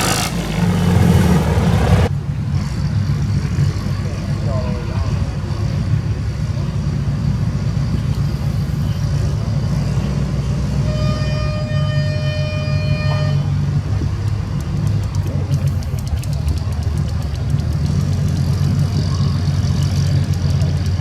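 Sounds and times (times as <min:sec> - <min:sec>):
tractor engine running: 0:00.0 - 0:21.0
held horn-like tone: 0:10.7 - 0:13.8.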